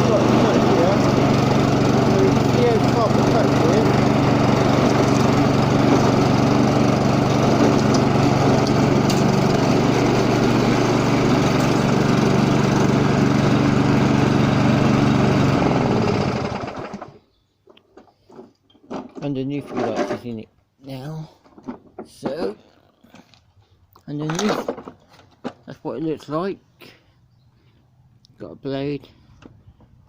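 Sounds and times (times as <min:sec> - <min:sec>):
lawnmower engine running: 0:00.0 - 0:17.2.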